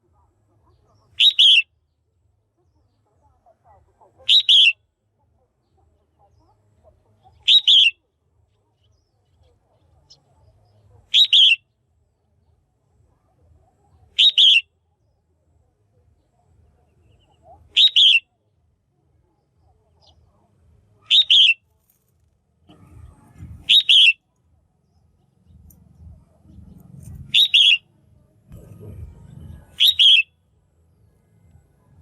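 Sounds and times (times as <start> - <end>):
bird double-note chirps: 14.2 - 14.6, 17.8 - 18.2, 21.1 - 21.6, 23.6 - 24.2, 27.2 - 27.8, 29.6 - 30.3
faint low rumble: 21.8 - 32.0.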